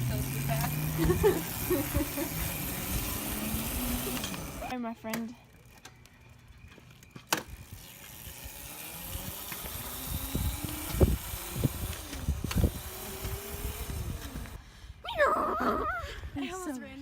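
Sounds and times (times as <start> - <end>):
small motorcycle engine revving: 0.0 - 4.7, 7.4 - 14.6.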